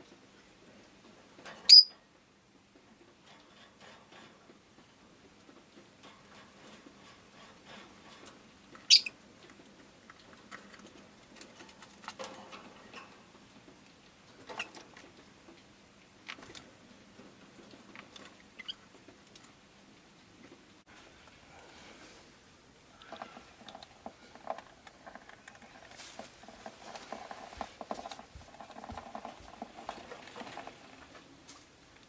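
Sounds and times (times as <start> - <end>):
bird chirping: 1.7 - 1.9, 8.9 - 9.1
light clicks and scratching: 2.8 - 32.0.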